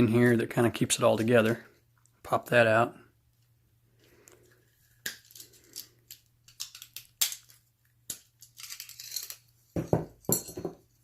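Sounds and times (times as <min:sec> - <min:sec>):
metal parts clicking and clinking: 0:05.0 - 0:11.0.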